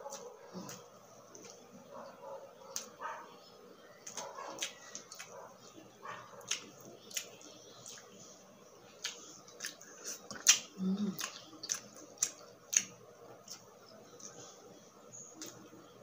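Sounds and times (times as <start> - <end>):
close chewing crunches: 0.0 - 1.8, 4.0 - 14.7.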